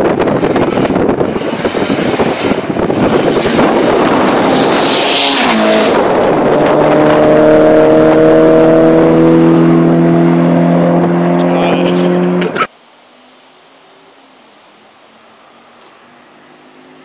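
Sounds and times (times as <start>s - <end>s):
car engine accelerating hard: 0.0s - 12.7s, 15.4s - 17.0s
wind noise rushing: 0.0s - 12.7s.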